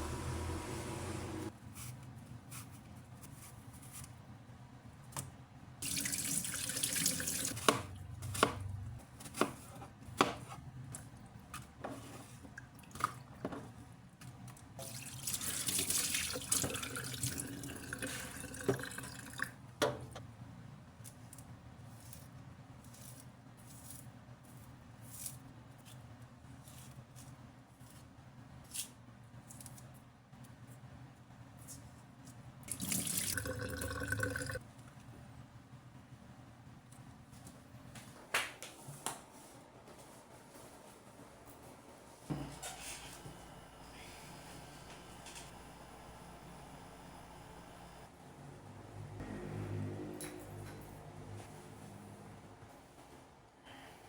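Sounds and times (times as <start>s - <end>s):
tap water running into sink: 14.8s - 19.4s, 32.7s - 34.6s.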